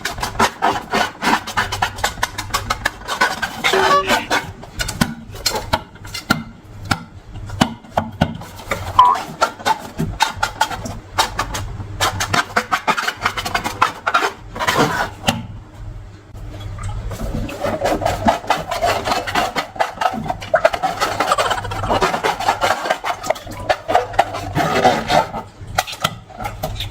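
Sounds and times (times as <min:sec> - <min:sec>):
brief squeak: 0:03.6 - 0:04.3, 0:09.0 - 0:09.2.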